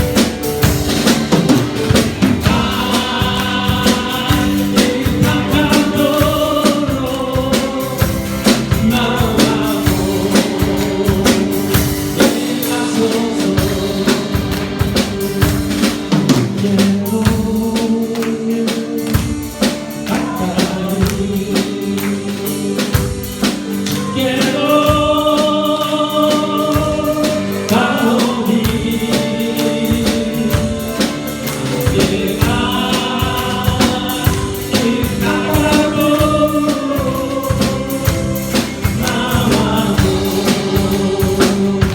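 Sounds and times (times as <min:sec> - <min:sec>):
group singing worship song: 0:00.0 - 0:41.9
instrumental accompaniment with beat: 0:00.0 - 0:41.9.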